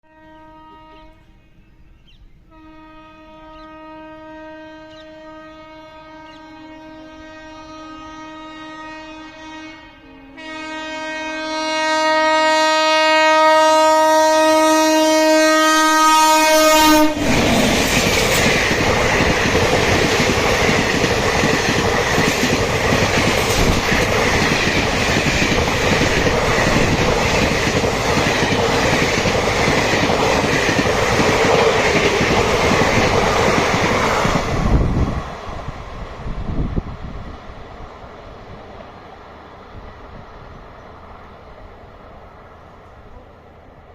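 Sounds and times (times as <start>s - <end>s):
locomotive horn blast: 0.0s - 1.4s, 2.5s - 18.8s
train coaches rushing past: 14.6s - 43.9s.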